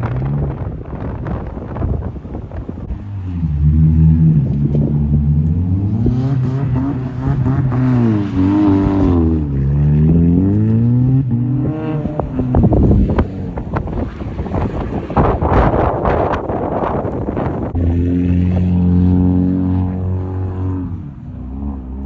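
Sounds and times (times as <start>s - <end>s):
engine crackling and knocking: 0.0s - 3.0s, 8.8s - 17.8s
car engine revving: 0.0s - 22.0s.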